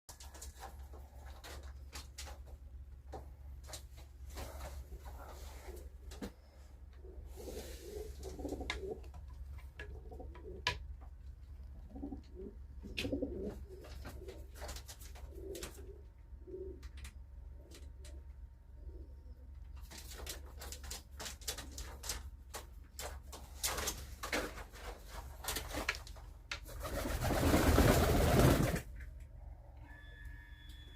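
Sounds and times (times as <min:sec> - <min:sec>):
pigeons cooing: 0:04.9 - 0:10.9, 0:11.5 - 0:19.6.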